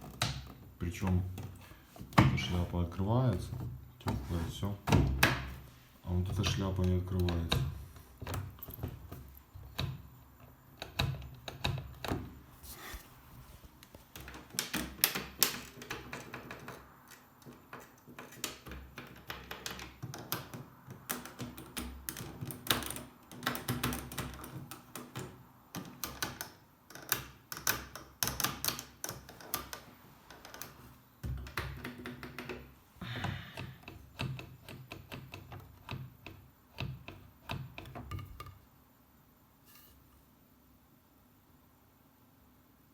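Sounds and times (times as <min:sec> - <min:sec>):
plastic clicks and knocks: 0:06.2 - 0:12.4, 0:13.9 - 0:38.6.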